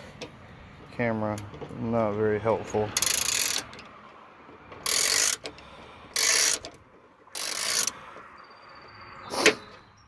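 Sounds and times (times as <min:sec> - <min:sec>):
ratchet pawl clicking: 0:03.0 - 0:03.8, 0:04.8 - 0:08.0.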